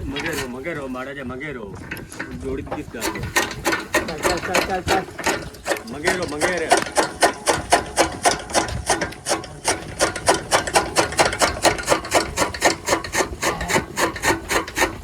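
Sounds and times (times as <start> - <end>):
chaff cutter mechanism clicking: 0.0 - 0.6, 1.9 - 15.0.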